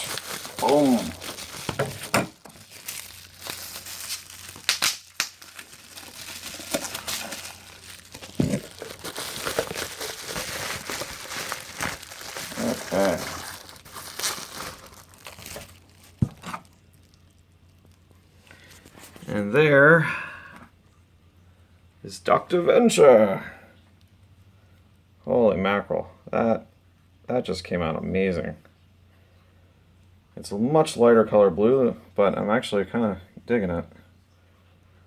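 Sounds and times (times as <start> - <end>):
packing wrap crinkling and tearing: 0.0 - 19.4.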